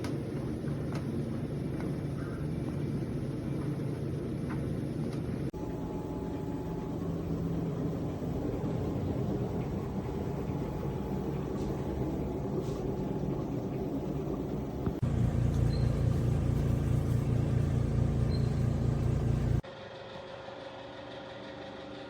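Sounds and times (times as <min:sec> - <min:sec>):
tumble dryer motor hum: 0:00.0 - 0:19.6.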